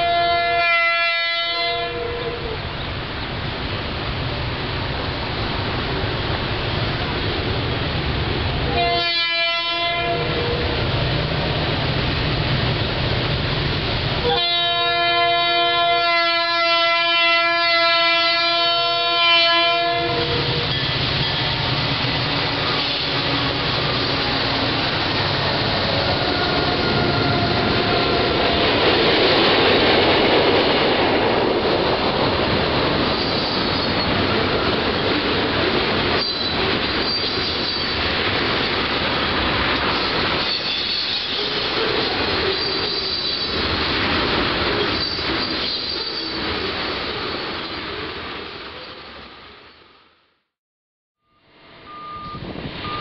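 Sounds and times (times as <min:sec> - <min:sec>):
locomotive horn blasts: 0:00.0 - 0:02.6, 0:08.7 - 0:10.8, 0:14.2 - 0:21.7, 0:22.6 - 0:23.7, 0:26.0 - 0:28.4
locomotives rumbling past: 0:01.6 - 0:16.8, 0:18.0 - 0:49.4
steel wheels on rails: 0:19.9 - 0:49.0.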